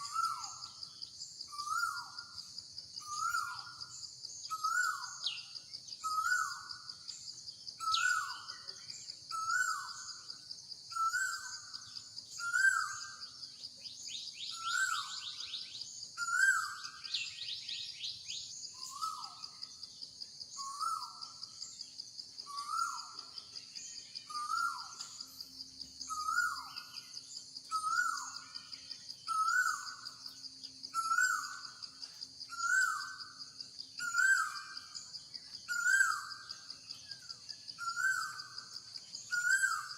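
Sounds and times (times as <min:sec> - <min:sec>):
high-pitched insect drone: 0:00.0 - 0:39.9
rapid bird chirps: 0:00.0 - 0:39.9.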